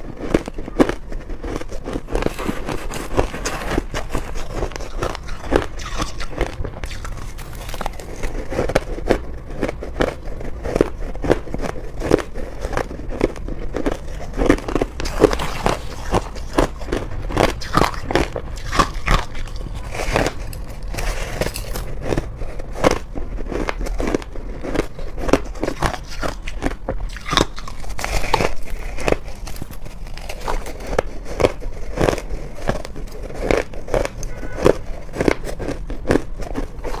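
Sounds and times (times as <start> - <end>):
biting and crunching ice: 0.0 - 37.0.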